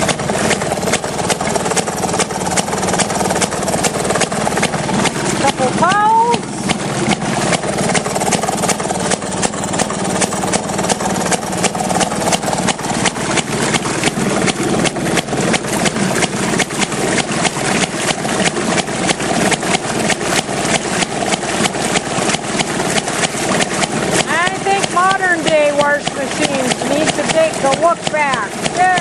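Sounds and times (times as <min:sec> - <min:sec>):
two-stroke engine running: 0:00.0 - 0:29.0.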